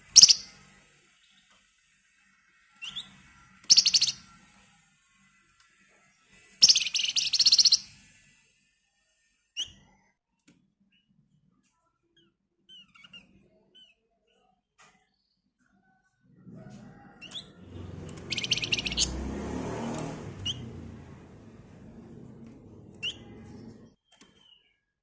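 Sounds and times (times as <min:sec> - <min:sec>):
songbird buzzy rattling trills: 0:00.0 - 0:00.7, 0:02.8 - 0:04.4, 0:06.6 - 0:08.0, 0:17.4 - 0:19.3.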